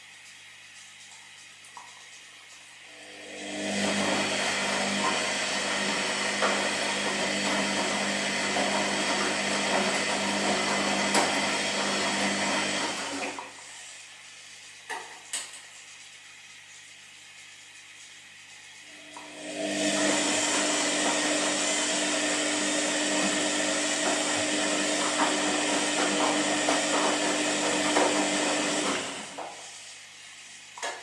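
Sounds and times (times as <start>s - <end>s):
washing machine hum: 0.0s - 31.0s
washing machine drum turning: 3.4s - 13.6s, 19.2s - 29.6s.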